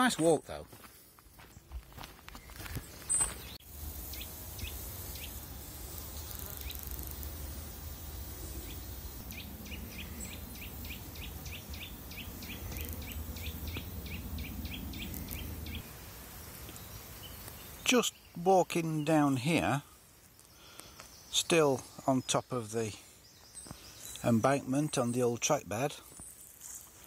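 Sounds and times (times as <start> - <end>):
small bird chirping: 2.4 - 15.9
steady low rumble: 7.0 - 16.1.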